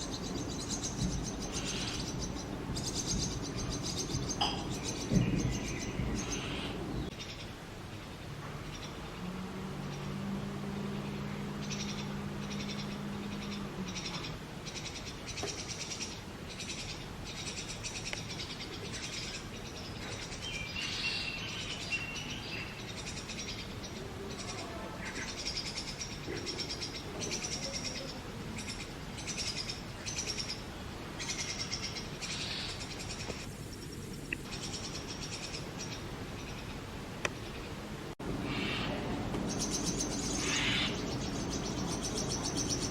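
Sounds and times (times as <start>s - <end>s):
nestlings begging with rasping chirps: 0.0s - 7.4s, 38.2s - 42.9s
low steady hum: 0.0s - 20.4s, 33.0s - 42.9s.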